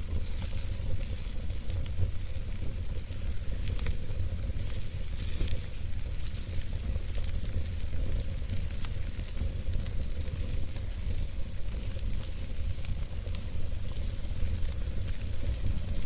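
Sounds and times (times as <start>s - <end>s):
burning wood crackling and popping: 0.0s - 16.0s
fire hissing: 0.0s - 16.0s
low rumble of flame: 0.0s - 16.0s.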